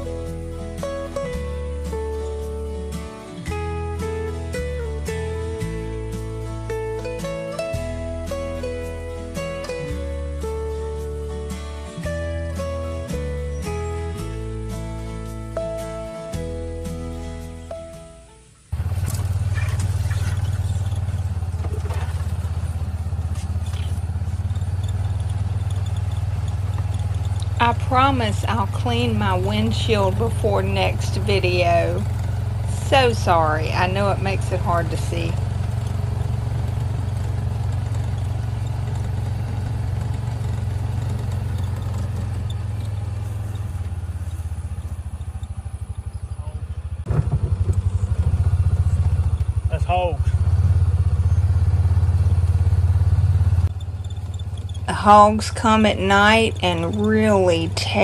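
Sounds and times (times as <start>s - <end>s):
vehicle engine running: 0.0s - 17.8s, 18.6s - 58.0s
light rattles: 18.7s - 49.7s, 52.2s - 58.0s.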